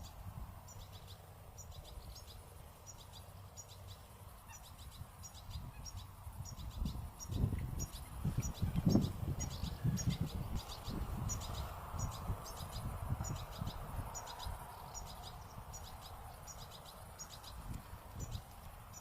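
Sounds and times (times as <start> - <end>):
low rumbling on microphone: 5.5 - 18.5.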